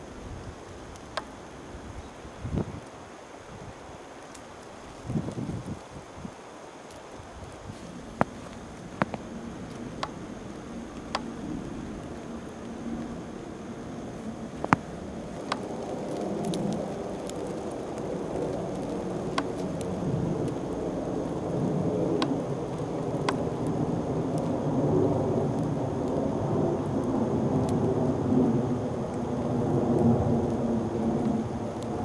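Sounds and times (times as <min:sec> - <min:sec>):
blizzard wind gusting: 0:00.0 - 0:32.0
faint sharp ticks: 0:00.9 - 0:01.4, 0:14.6 - 0:20.6, 0:22.1 - 0:23.5.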